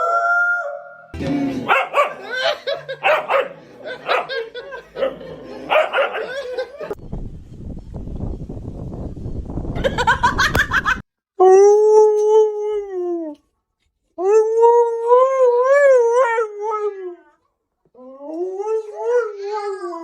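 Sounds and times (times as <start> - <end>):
dog howling: 0.0 - 4.4
dog yelping: 1.7 - 4.4, 5.0 - 6.7.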